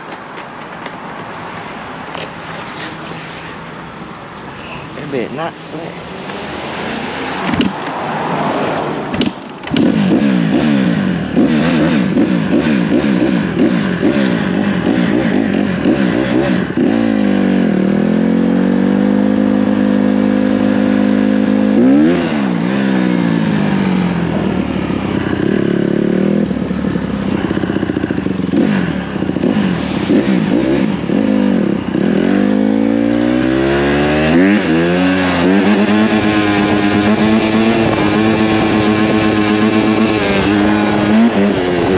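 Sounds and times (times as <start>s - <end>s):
dirt bike engine revving: 9.1s - 41.9s.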